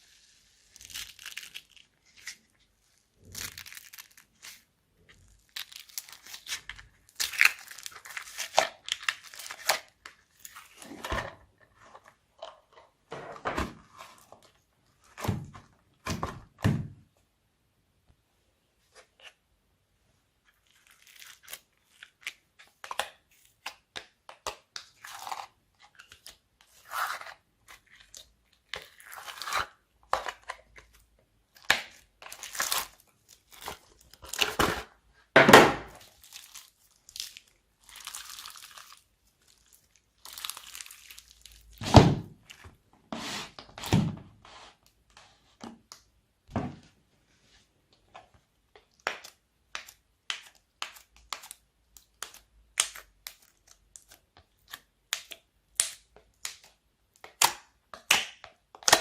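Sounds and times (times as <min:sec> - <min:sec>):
slime squelching and crackling: 0:00.0 - 0:11.0, 0:31.6 - 0:34.8, 0:35.9 - 0:42.6.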